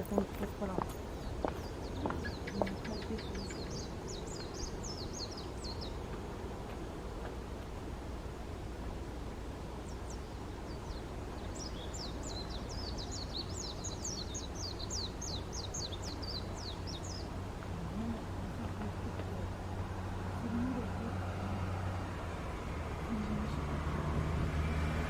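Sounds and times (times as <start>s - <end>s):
small bird chirping: 0.0s - 6.2s, 9.9s - 19.4s
steady low rumble: 0.0s - 24.6s.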